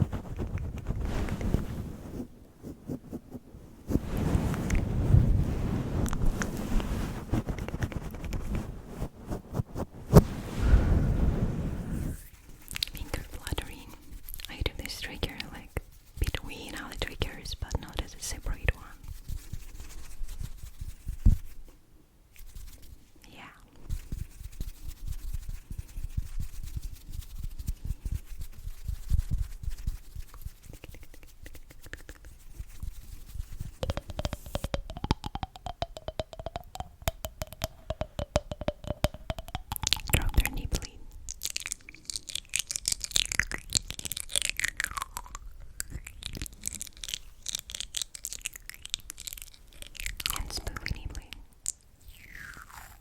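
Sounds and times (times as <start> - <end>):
crackly clicking: 33.8 - 52.4.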